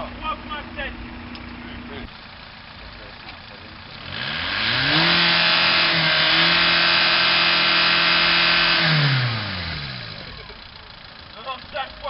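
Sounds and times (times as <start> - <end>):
vehicle engine revving loudly: 3.7 - 12.0.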